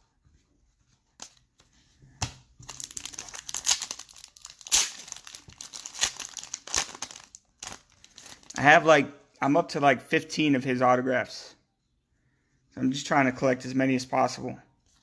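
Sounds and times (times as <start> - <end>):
wrapper tearing and crinkling: 2.7 - 8.6.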